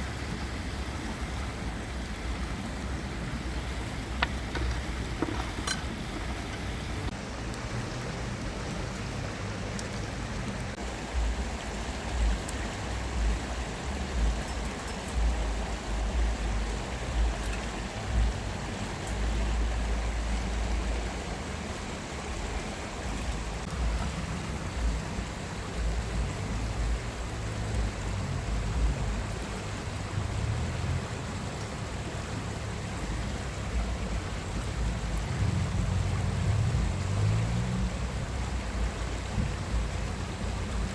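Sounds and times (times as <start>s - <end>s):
low uneven rumble: 0.0s - 29.5s
flowing stream rushing: 0.0s - 40.9s.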